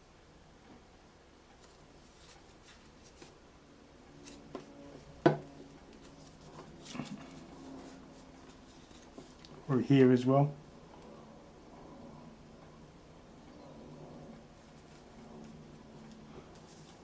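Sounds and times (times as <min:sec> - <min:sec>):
paper rustling: 0:01.6 - 0:03.4, 0:05.8 - 0:09.6, 0:14.6 - 0:17.0.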